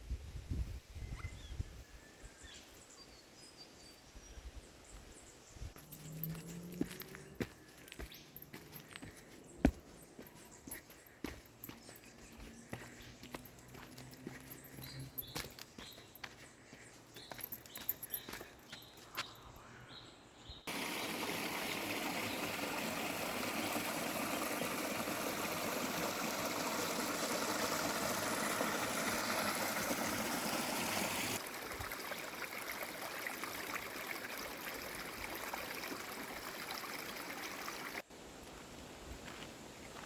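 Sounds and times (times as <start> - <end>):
creek water rushing: 20.7 - 38.1.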